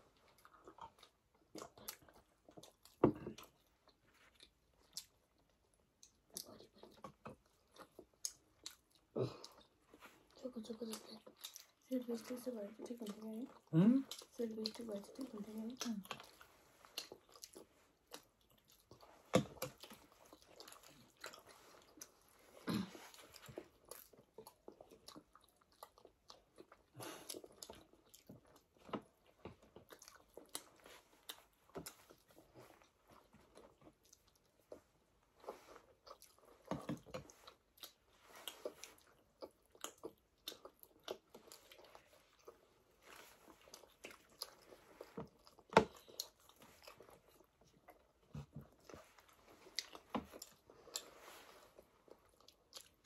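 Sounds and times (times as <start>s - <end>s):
people chewing: 0.0s - 53.0s.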